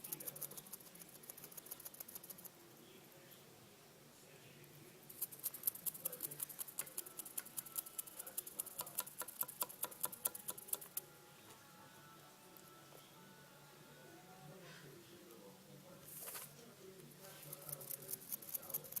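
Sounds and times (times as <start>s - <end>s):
fast sharp clicks: 0.0s - 2.5s, 5.1s - 11.0s.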